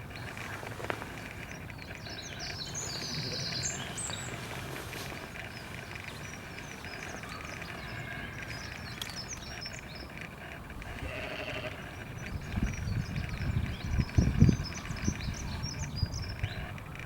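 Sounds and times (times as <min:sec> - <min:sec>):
small birds chirping: 0:00.0 - 0:17.0
steady outdoor background: 0:00.0 - 0:17.0
held animal call: 0:01.8 - 0:12.1.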